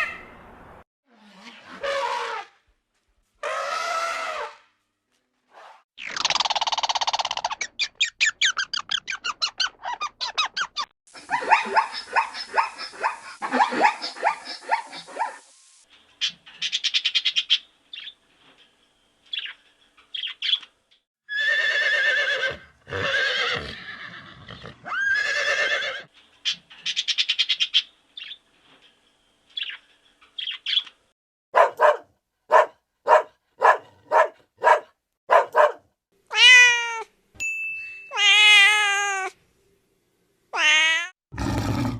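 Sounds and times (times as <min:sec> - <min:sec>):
dog barking: 0:31.5 - 0:35.9.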